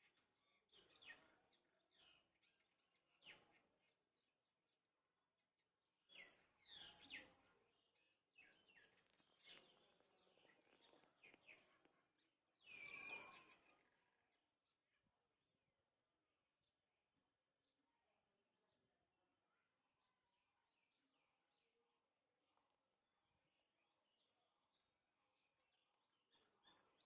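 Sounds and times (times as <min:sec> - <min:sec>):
faint bird chirping: 0:06.0 - 0:15.4, 0:23.2 - 0:27.0.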